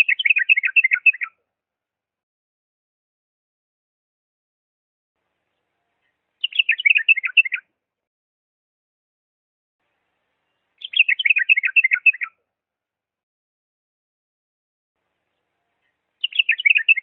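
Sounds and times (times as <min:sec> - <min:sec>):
bird warbling song: 0:00.0 - 0:01.4, 0:05.5 - 0:07.7, 0:10.4 - 0:12.4, 0:15.2 - 0:17.0.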